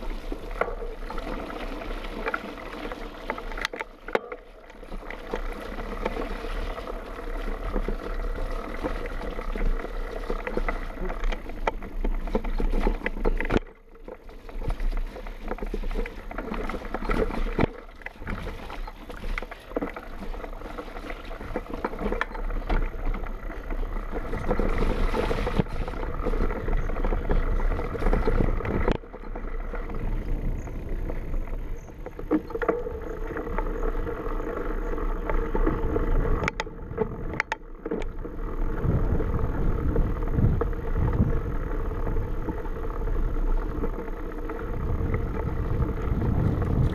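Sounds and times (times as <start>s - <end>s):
bike rattling: 0.0s - 46.9s
bike tyres rolling: 0.0s - 46.9s
wind rushing over microphone: 38.7s - 43.2s, 44.6s - 46.9s.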